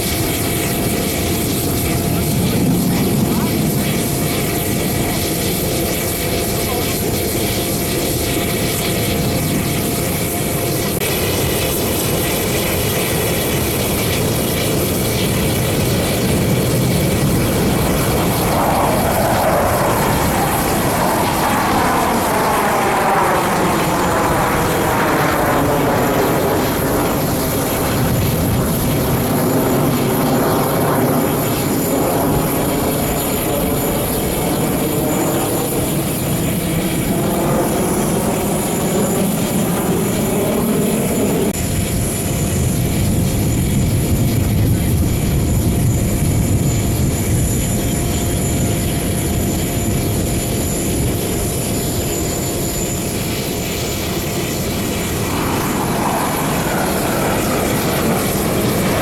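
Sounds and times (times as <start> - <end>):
jet fighters rushing overhead: 0.0 - 59.0
sweeping tone of jets flying past: 14.6 - 43.3, 46.1 - 59.0.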